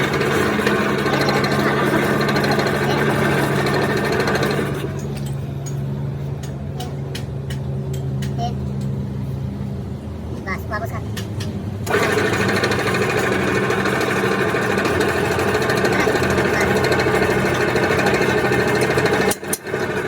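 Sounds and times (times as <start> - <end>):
loud power tool noise: 0.0 - 5.2, 11.8 - 20.0.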